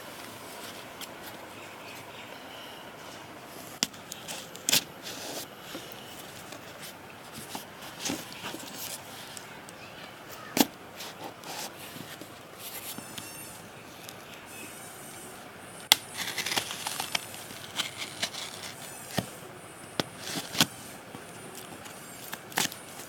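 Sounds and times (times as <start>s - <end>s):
wrapping crinkling and tearing: 15.9s - 19.2s.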